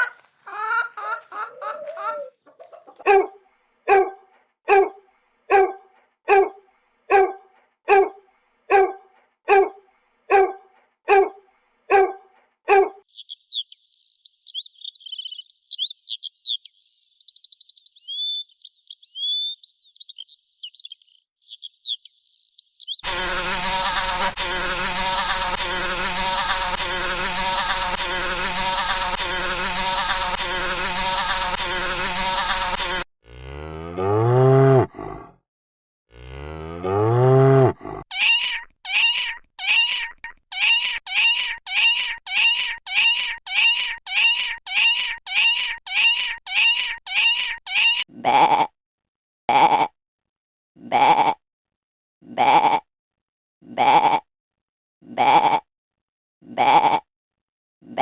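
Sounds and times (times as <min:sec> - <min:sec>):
hen clucking: 0:00.0 - 0:03.2, 0:38.1 - 0:48.0
small birds chirping: 0:13.0 - 0:25.3
flying insect buzzing: 0:23.0 - 0:33.1, 0:40.6 - 0:48.0
cow mooing: 0:33.3 - 0:34.9, 0:36.1 - 0:37.7.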